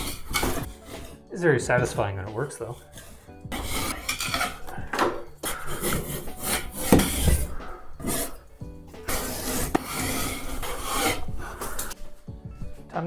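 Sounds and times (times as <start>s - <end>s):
scraper ripping ceiling tiles: 0.0s - 1.1s, 3.1s - 8.4s, 9.0s - 12.0s
background music: 0.0s - 13.0s.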